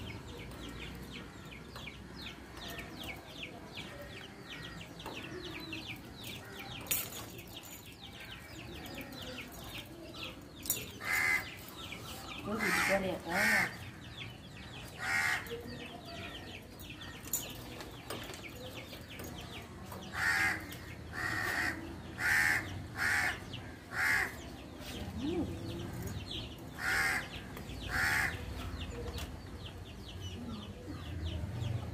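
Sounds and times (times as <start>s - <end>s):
small birds chirping: 0.0s - 31.9s
loud harsh bird calls: 10.9s - 17.5s, 20.0s - 24.7s, 26.0s - 28.8s.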